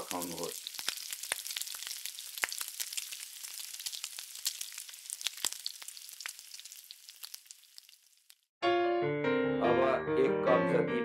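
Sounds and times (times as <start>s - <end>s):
curry sizzling and popping: 0.0s - 8.6s.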